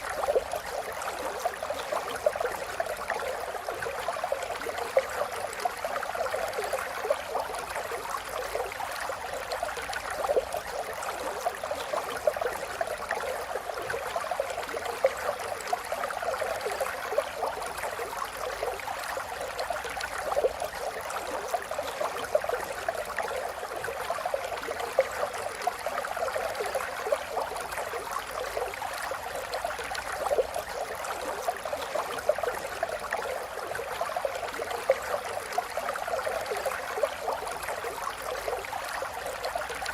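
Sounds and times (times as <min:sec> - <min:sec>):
water splashes and gurgles: 0:00.0 - 0:39.9.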